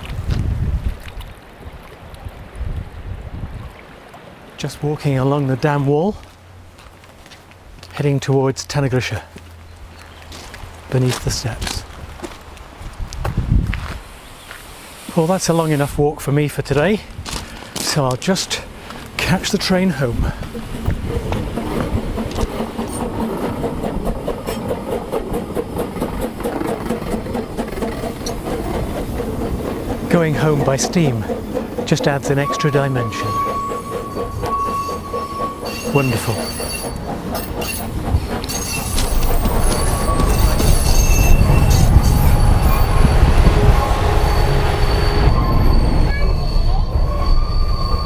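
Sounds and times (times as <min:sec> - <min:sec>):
steam train rumble: 0:07.9 - 0:48.0
wheels clicking on track: 0:16.3 - 0:48.0.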